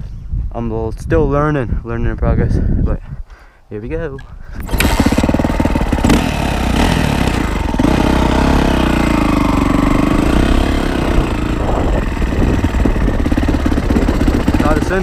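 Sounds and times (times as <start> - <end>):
dirt bike engine under throttle: 4.5 - 15.0.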